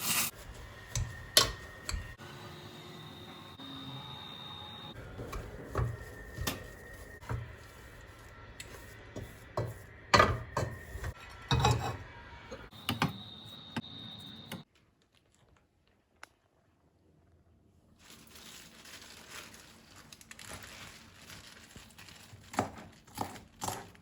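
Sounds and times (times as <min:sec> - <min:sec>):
utensils and dishes clinking: 0:00.9 - 0:02.2, 0:05.0 - 0:07.5, 0:08.6 - 0:13.1.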